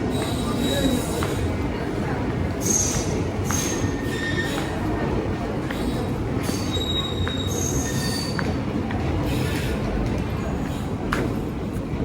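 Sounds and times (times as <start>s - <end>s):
train wheels rumbling on rails: 0.0s - 12.0s
high-pitched wheel squeals: 6.5s - 8.4s.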